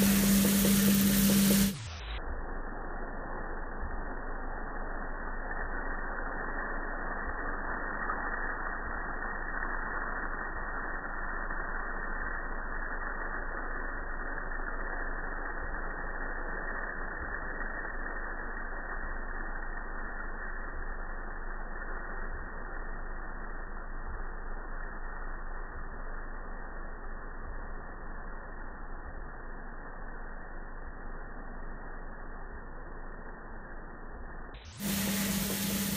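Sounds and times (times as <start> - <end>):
coffee roaster running: 0.0 - 2.0, 34.7 - 35.9.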